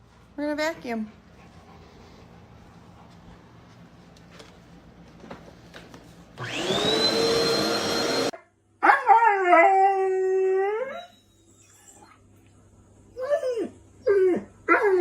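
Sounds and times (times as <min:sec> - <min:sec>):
vacuum cleaner motor whine: 0:06.4 - 0:08.3.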